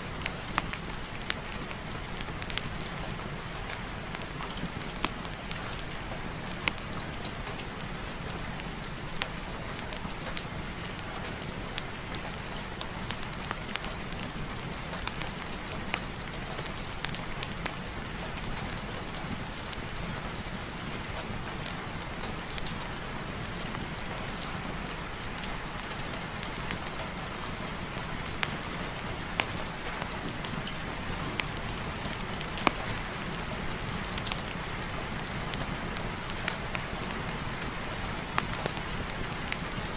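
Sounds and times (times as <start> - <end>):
heavy rain falling: 0.0 - 39.9
sharp ticks and pops: 0.1 - 21.1, 25.1 - 39.9.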